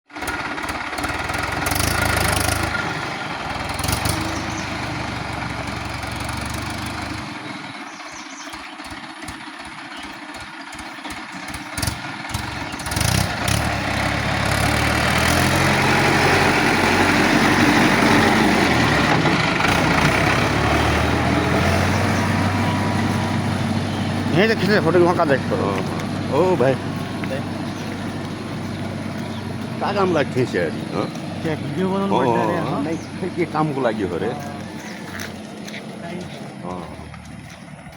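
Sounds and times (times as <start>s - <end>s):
tractor engine running: 0.1s - 37.9s.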